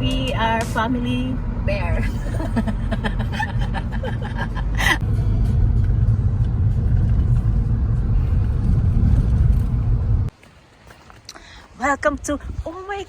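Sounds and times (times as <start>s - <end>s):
car cabin road rumble: 0.0s - 10.4s.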